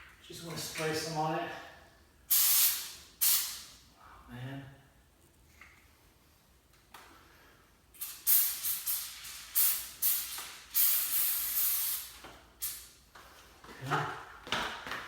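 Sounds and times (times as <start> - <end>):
aerosol spray hissing: 2.3 - 3.7, 8.0 - 12.9.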